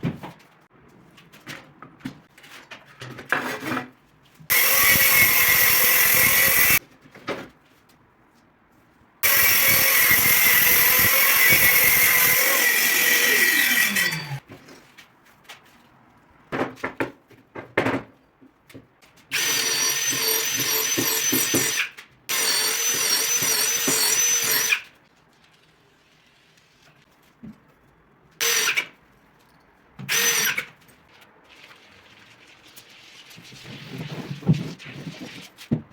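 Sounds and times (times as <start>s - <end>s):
electric power tool running: 4.5s - 6.8s, 9.2s - 14.4s.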